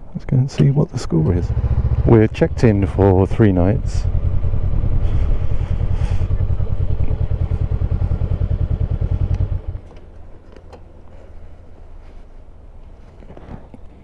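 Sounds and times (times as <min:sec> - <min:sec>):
motorcycle engine idling: 0:01.3 - 0:10.4.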